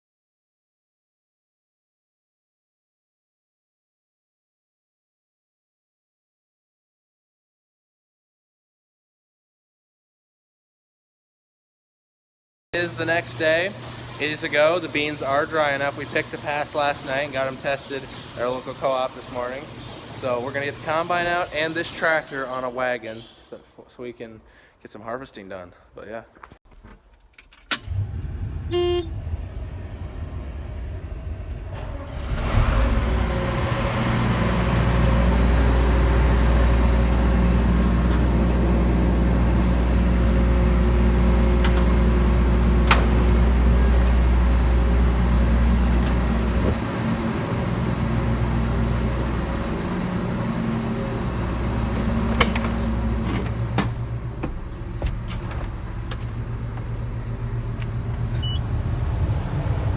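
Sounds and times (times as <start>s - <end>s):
diesel engine running: 12.8s - 21.8s, 27.8s - 59.9s
warning beep: 28.7s - 29.2s.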